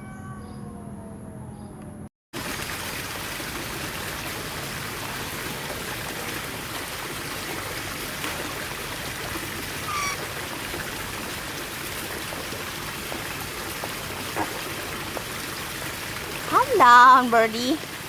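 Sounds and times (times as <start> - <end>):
bird chirp: 0.0 - 0.8, 9.9 - 10.2
running water rushing: 2.4 - 18.0.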